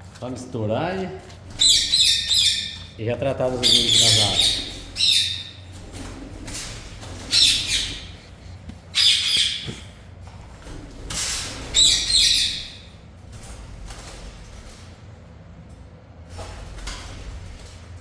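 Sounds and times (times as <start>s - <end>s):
birds chirping and squawking: 0.8s - 14.8s.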